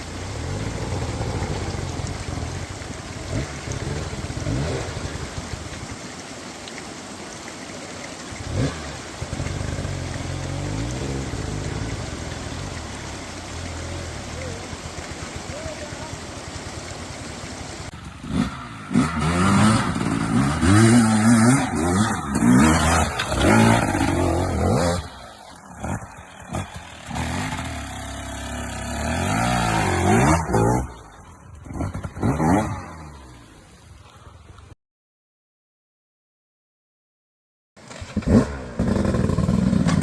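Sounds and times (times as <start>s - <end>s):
dirt bike engine revving: 0.0s - 2.6s, 3.2s - 5.5s, 8.4s - 31.0s, 38.0s - 40.0s.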